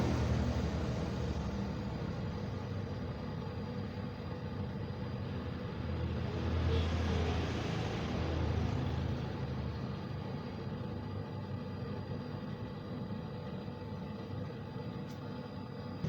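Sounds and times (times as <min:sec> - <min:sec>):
low rumble with hiss: 0:00.0 - 0:16.0.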